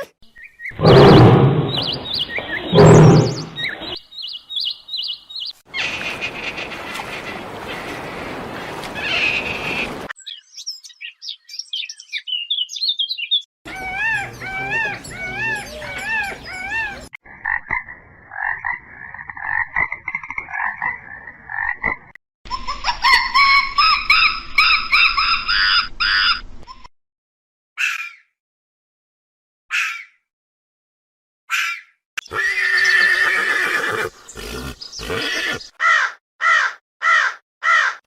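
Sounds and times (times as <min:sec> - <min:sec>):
high animal chirps: 0:00.7 - 0:04.0
repeated arched calls: 0:00.7 - 0:04.0, 0:13.7 - 0:17.1.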